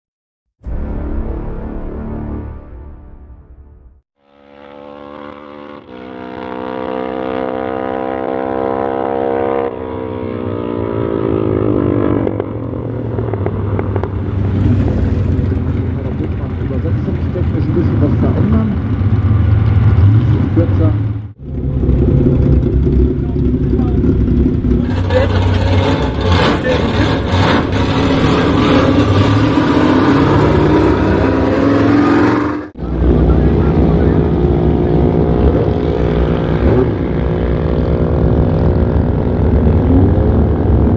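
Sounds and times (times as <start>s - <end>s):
car engine exhaust note: 11.1s - 40.9s.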